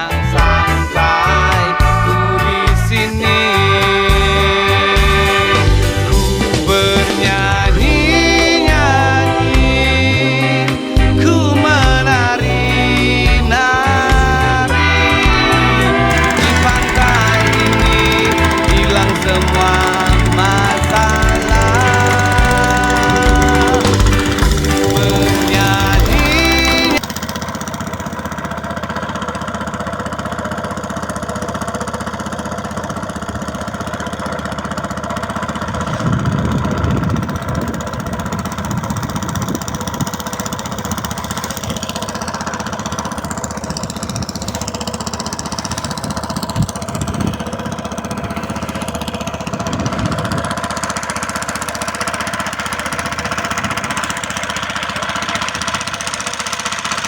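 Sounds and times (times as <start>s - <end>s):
engine knocking: 12.1s - 57.0s.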